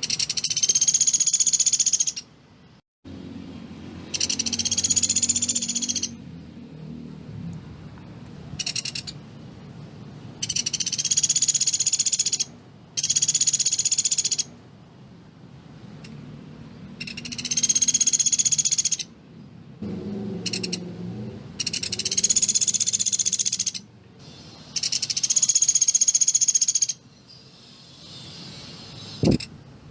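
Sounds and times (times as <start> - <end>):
woodpecker high-pitched rapid trills: 0.0 - 2.3, 4.1 - 6.2, 8.6 - 9.2, 10.4 - 14.5, 17.0 - 19.1, 20.5 - 20.8, 21.6 - 29.5.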